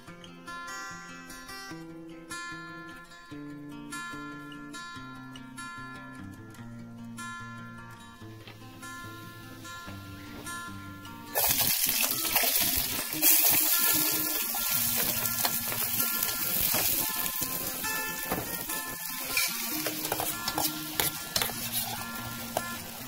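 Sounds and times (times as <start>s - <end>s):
onion and tomato sizzling in pot: 9.4s - 23.0s.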